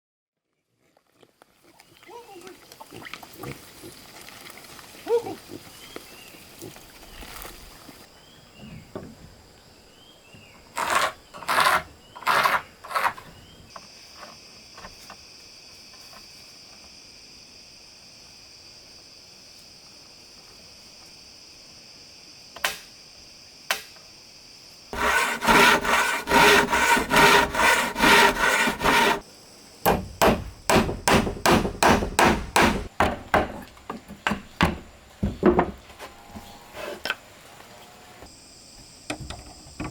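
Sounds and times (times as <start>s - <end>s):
tool scraping wood: 10.7s - 13.4s, 25.0s - 29.2s, 29.9s - 32.9s.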